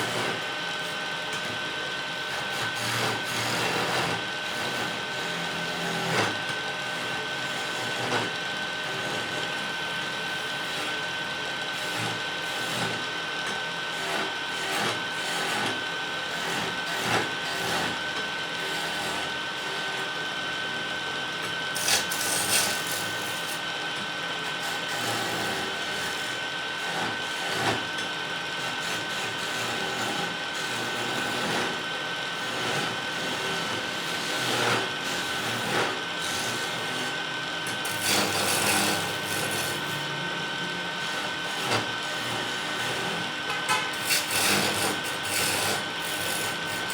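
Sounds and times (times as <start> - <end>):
wood lathe whining: 0.0 - 46.9
tool scraping turning wood: 21.8 - 23.6, 32.4 - 40.2, 41.0 - 46.9.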